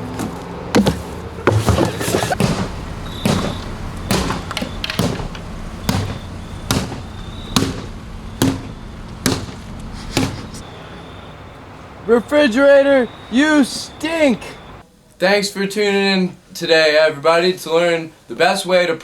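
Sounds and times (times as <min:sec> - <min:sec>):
heavy thumps of seesaw: 0:00.0 - 0:10.6.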